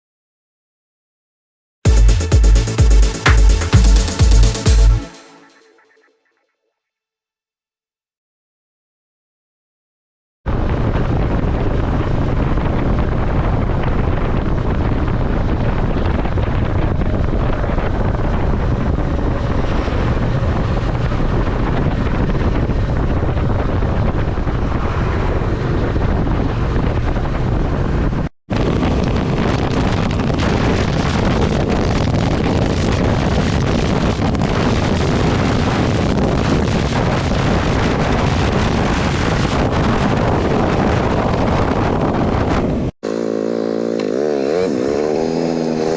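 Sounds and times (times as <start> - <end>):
wind rushing over microphone: 10.5 - 45.9.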